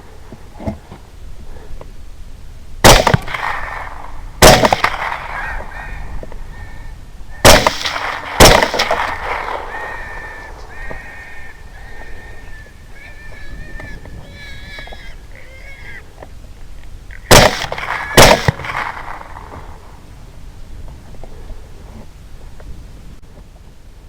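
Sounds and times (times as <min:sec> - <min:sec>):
suppressed rifle shots: 0:02.8 - 0:05.6, 0:07.4 - 0:10.1, 0:17.3 - 0:19.9
hogs squealing: 0:08.8 - 0:16.2.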